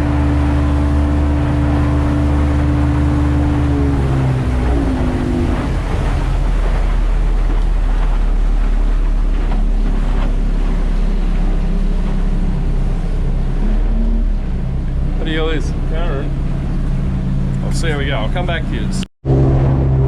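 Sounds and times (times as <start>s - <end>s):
wind on microphone: 0.0s - 15.2s
outboard motor running: 0.0s - 20.0s
water rushing along hull: 0.0s - 20.0s.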